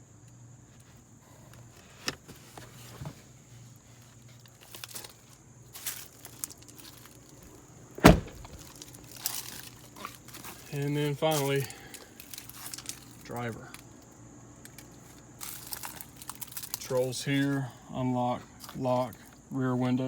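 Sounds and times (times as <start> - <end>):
truck door slamming: 8.0 - 8.7
handling clicks and knocks: 8.0 - 8.8.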